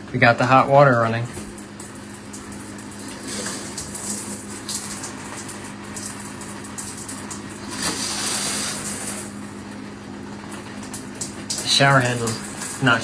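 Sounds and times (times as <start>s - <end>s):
running water hiss: 7.6s - 9.3s.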